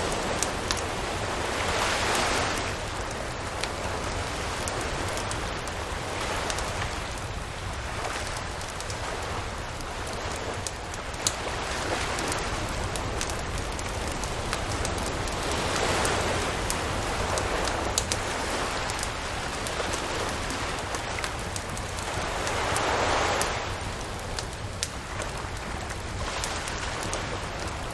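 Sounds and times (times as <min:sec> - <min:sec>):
campfire crackling and popping: 0:00.0 - 0:27.9
surf washing: 0:00.0 - 0:27.9.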